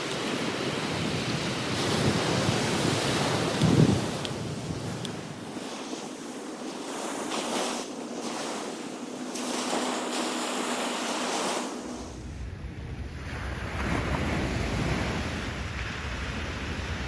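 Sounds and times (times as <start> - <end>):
wind buffeting microphone: 0.0 - 7.4, 12.0 - 17.0
ocean surf breaking: 0.0 - 17.0.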